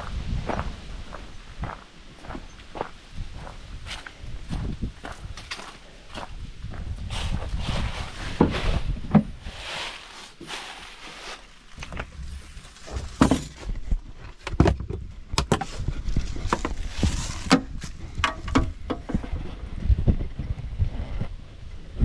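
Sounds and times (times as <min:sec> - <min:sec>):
rustling: 0:07.0 - 0:14.3, 0:15.6 - 0:18.0.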